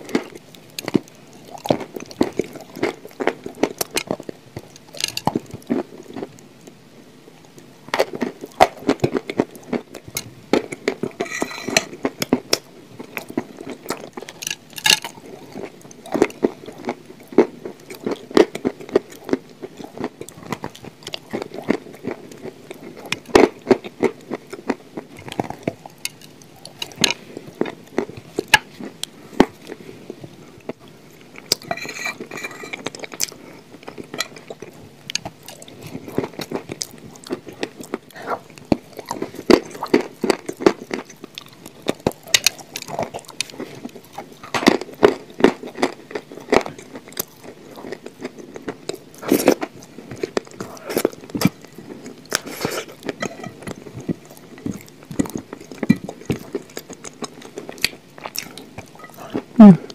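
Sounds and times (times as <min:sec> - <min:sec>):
chewing with soft crunches: 0:00.0 - 0:59.9
wet mouth sounds: 0:57.8 - 0:59.9.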